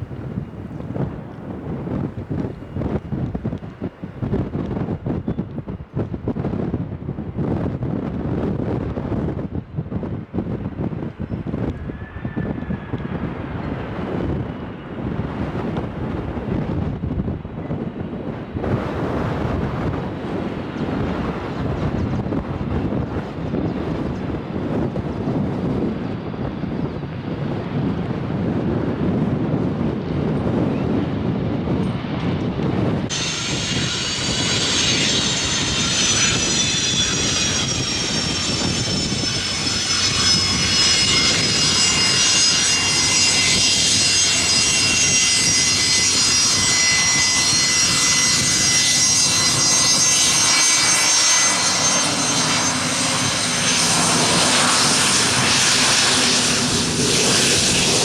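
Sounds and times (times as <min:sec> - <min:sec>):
wind rumbling on microphone: 0:00.0 - 0:58.0
jet engines whining: 0:29.8 - 0:58.0.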